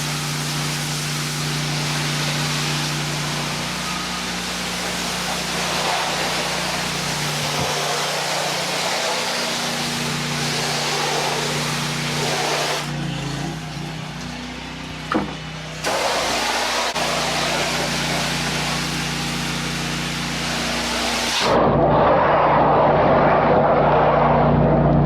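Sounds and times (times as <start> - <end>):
high-pressure spray hissing: 0.0 - 12.9, 15.8 - 21.6
pressure washer engine droning: 0.0 - 25.0.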